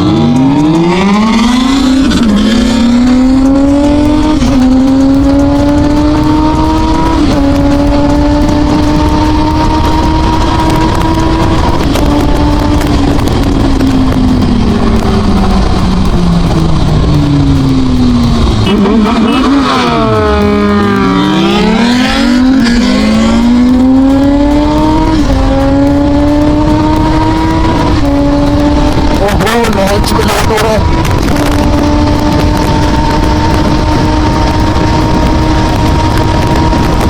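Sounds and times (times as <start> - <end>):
motorcycle engine at speed: 0.0 - 37.0
wind rush: 0.0 - 37.0
engine sweeping past: 18.4 - 31.0.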